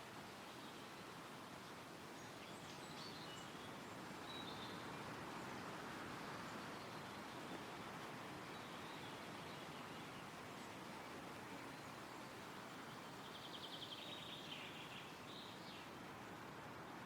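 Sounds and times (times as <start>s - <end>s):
wind rustling through trees: 0.0s - 17.0s
faint bird chirps: 11.6s - 16.0s.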